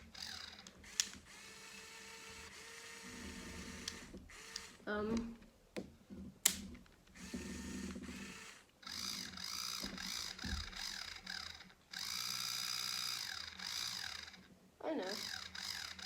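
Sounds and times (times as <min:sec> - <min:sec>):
plastic gears rattling: 0:00.0 - 0:02.0, 0:06.4 - 0:14.5, 0:15.2 - 0:16.0
toy electric motor whining: 0:00.0 - 0:05.4, 0:07.1 - 0:16.0.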